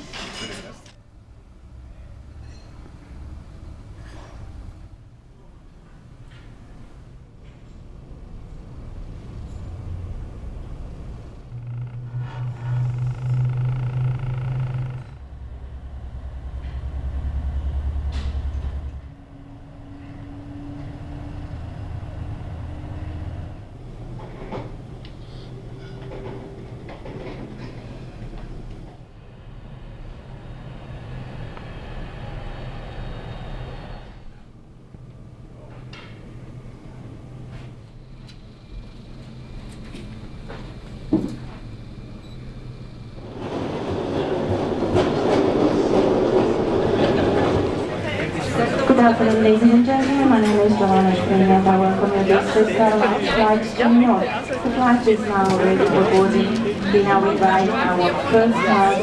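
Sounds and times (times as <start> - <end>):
vehicle rumbling: 1.0 - 52.3
vehicle rumble from inside: 8.3 - 23.5
low motor hum: 8.3 - 25.1
high whining tones: 11.2 - 16.1.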